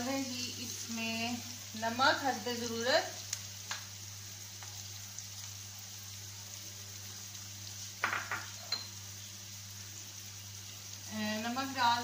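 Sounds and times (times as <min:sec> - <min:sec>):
onions sizzling in hot oil: 0:00.0 - 0:12.0
metal clinks against a pan: 0:08.1 - 0:09.0.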